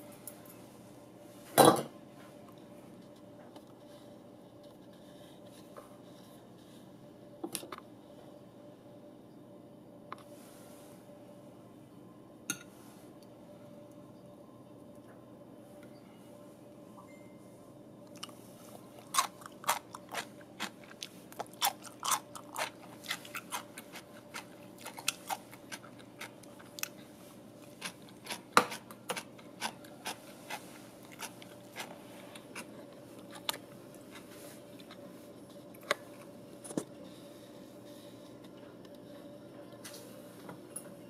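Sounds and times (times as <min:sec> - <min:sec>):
crunching pickled cucumber: 0:18.1 - 0:27.0, 0:27.6 - 0:35.0.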